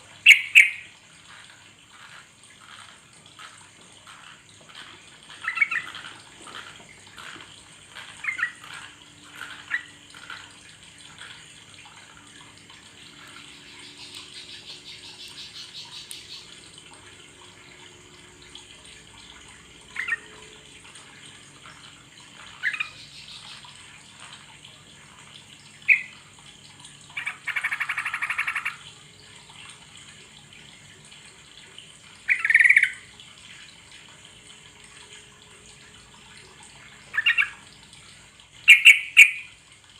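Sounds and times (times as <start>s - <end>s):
rushing running water: 0.0s - 39.9s
bulbul chirping: 0.2s - 0.9s.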